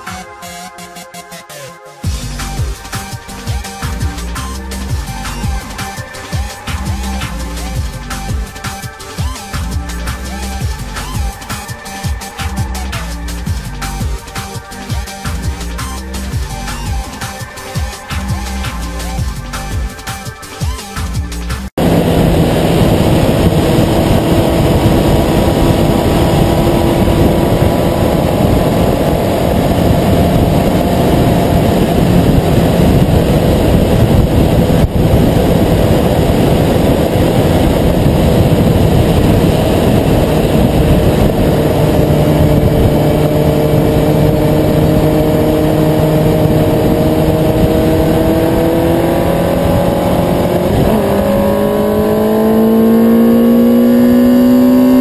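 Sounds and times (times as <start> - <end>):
road noise: 2.1 - 20.1, 21.0 - 55.0
car engine running under load: 21.7 - 55.0.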